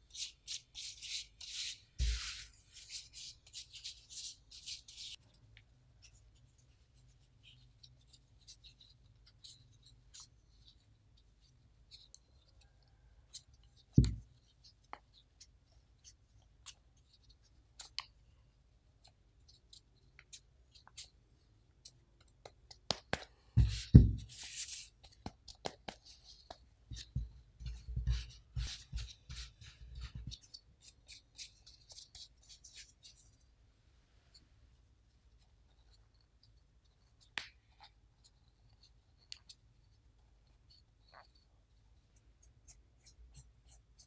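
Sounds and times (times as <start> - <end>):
soft thuds and crackles: 23.6 - 24.3.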